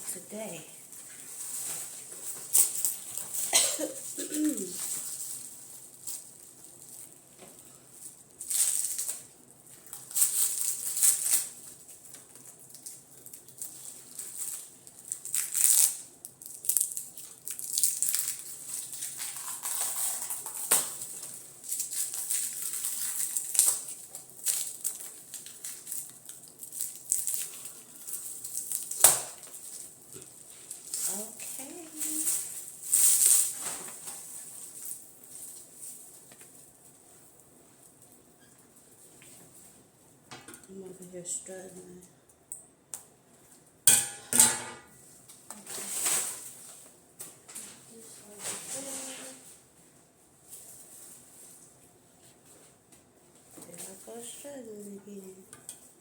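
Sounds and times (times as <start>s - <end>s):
packaging rustling and crinkling: 0.8s - 37.2s, 45.1s - 49.7s.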